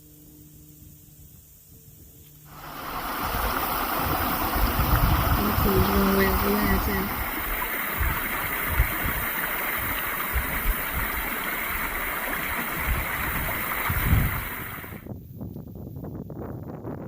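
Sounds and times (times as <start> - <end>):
wind across microphone: 2.5 - 17.0
low buffeting thumps: 2.9 - 14.6.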